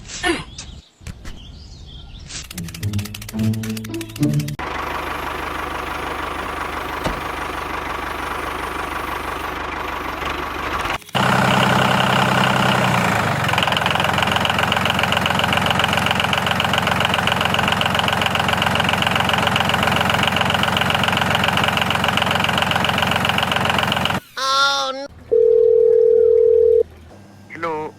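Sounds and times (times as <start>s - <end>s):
small motor idling: 4.6s - 24.5s.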